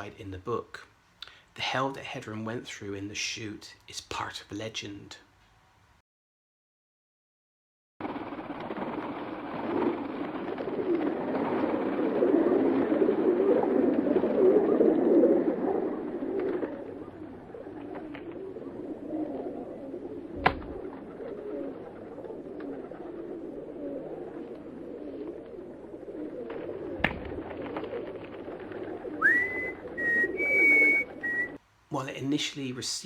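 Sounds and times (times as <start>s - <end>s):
flock of birds chattering and cooing: 8.1s - 31.6s.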